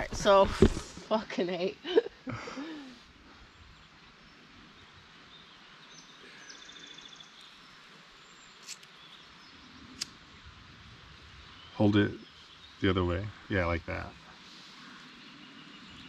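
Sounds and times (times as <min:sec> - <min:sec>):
faint bird calls: 0:02.2 - 0:10.5.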